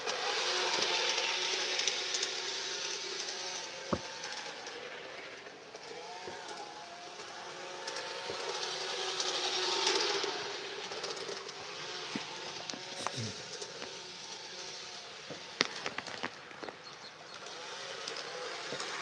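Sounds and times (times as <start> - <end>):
model train humming: 0.0 - 19.0.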